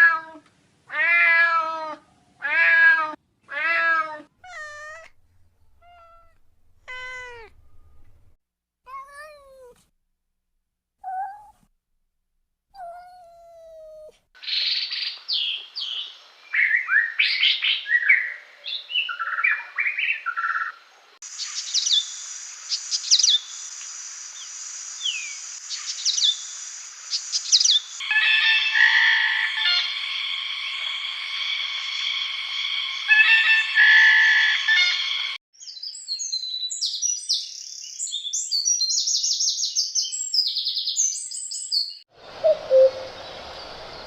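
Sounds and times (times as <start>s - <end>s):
cat meowing: 0.0s - 5.2s, 5.8s - 7.6s, 8.9s - 9.8s
small birds chirping: 14.4s - 28.1s, 35.2s - 44.0s
steady high hiss: 21.2s - 28.2s.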